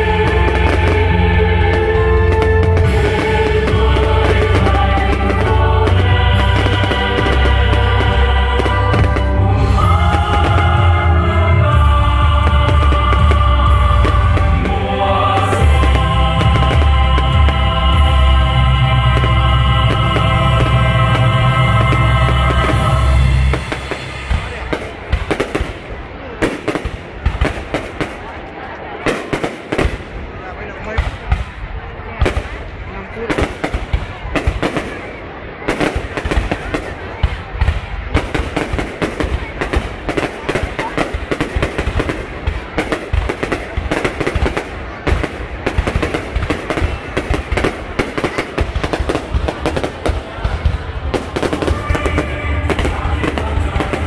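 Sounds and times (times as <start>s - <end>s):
loud music with heavy bass: 0.0s - 24.6s, 51.0s - 54.0s
fireworks banging and crackling: 0.0s - 54.0s.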